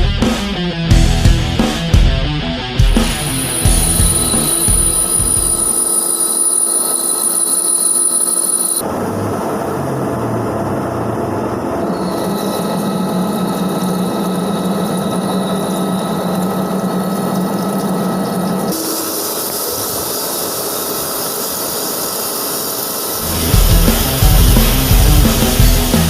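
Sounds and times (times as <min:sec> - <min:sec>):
metal lathe humming: 0:03.1 - 0:08.8, 0:11.9 - 0:26.0.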